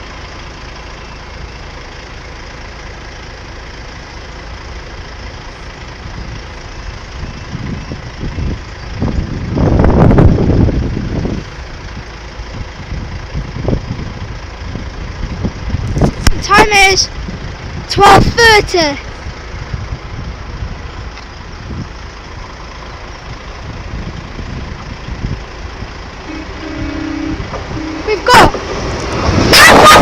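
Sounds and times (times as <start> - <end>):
vehicle passing by: 26.2 - 30.0.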